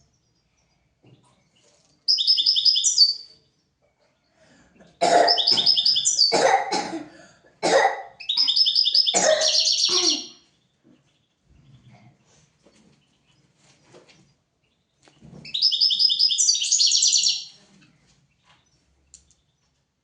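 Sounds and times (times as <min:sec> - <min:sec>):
goldfinch singing: 0:02.1 - 0:03.3, 0:05.3 - 0:06.4, 0:08.2 - 0:11.3, 0:15.4 - 0:17.6.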